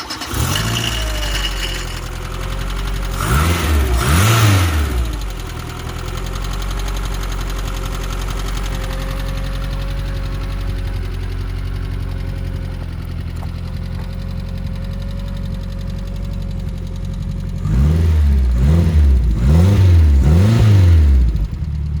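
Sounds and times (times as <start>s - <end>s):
engine revving: 0.0s - 12.0s, 17.5s - 22.0s
car engine idling: 0.0s - 22.0s.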